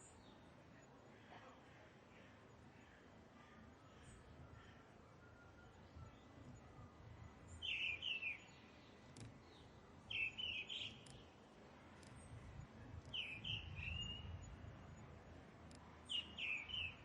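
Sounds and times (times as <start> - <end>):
bird singing: 7.4 - 11.3, 13.1 - 14.6, 16.0 - 17.0.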